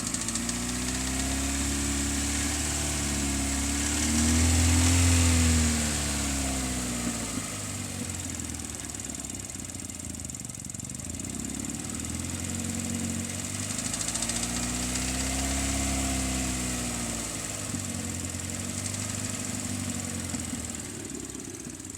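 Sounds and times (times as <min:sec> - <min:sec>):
car engine idling and revving: 0:00.0 - 0:21.9.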